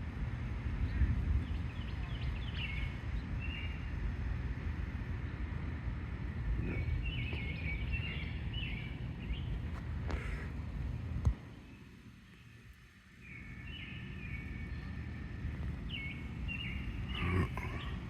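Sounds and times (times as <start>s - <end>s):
wind buffeting microphone: 0.0s - 11.6s
small birds chirping: 0.7s - 4.2s, 6.3s - 18.0s.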